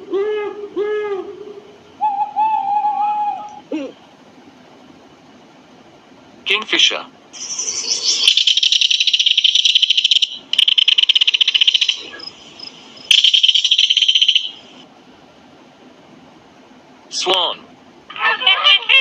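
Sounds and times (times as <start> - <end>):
kingfisher rattling trill: 7.4 - 14.7.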